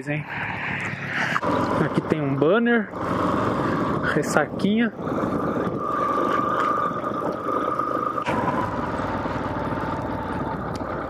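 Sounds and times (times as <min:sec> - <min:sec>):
motorcycle engine running: 0:00.5 - 0:11.0.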